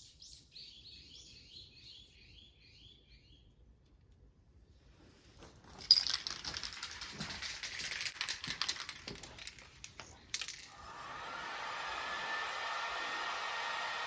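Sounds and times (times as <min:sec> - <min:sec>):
small hard clicks and rattles: 0:05.7 - 0:10.8.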